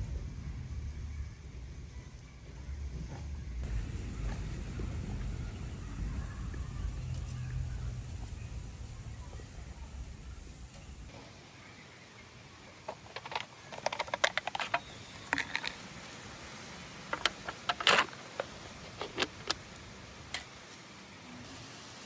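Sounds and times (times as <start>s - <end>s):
utensils clicking and clinking: 12.9s - 15.8s.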